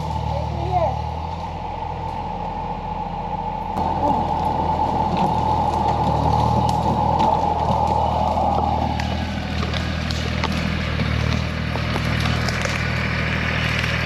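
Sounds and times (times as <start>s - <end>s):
tractor diesel engine running: 0.0s - 14.0s
small cracks and clicks: 5.7s - 14.0s.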